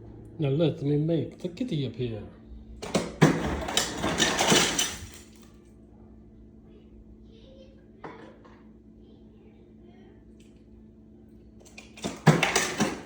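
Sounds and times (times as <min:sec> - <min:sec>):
ice cubes clattering in a container: 0:03.2 - 0:05.4, 0:11.7 - 0:13.0.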